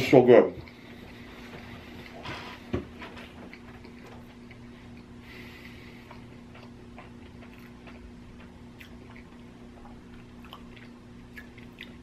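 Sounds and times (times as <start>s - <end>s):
steady low hum: 0.0s - 12.0s
person chewing with wet clicks: 0.6s - 2.2s, 2.8s - 5.3s, 6.0s - 12.0s.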